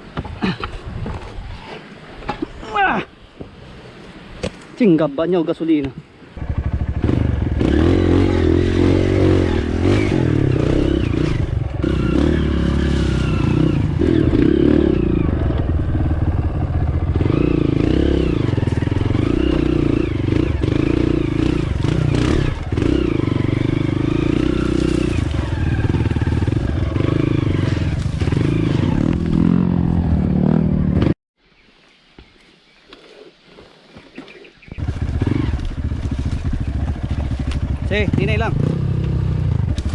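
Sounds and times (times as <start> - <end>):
dirt bike engine revving: 6.4 - 31.2, 34.7 - 39.9.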